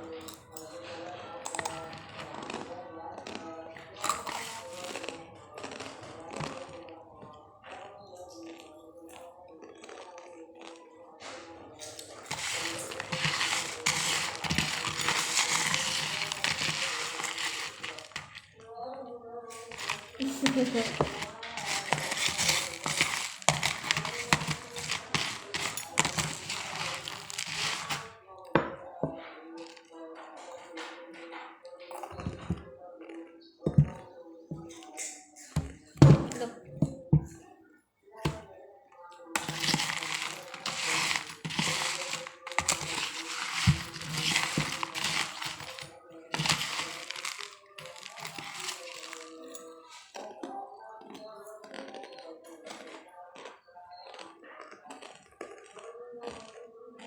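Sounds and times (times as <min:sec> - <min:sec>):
crunchy snacks being chewed: 0:00.0 - 0:18.7, 0:19.5 - 0:28.2, 0:39.3 - 0:57.0
faint background music: 0:00.0 - 0:57.0.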